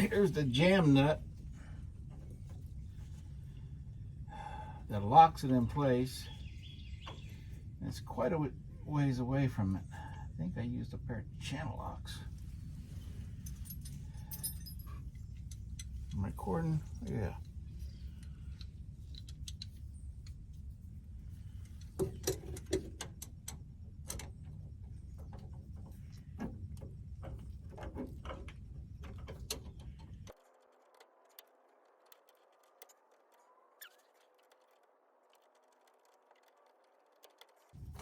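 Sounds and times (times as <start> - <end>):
low steady rumble: 0.0 - 30.4, 35.3 - 38.0
hand tools clicking and clinking: 13.4 - 16.2.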